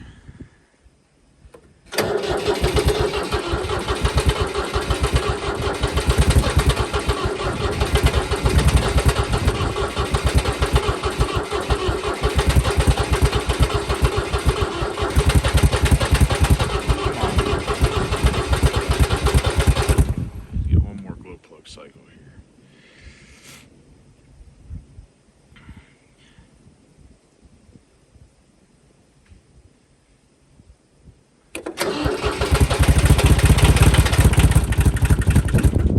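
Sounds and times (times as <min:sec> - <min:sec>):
diesel tractor engine cranking: 0:01.9 - 0:20.4, 0:31.6 - 0:35.9.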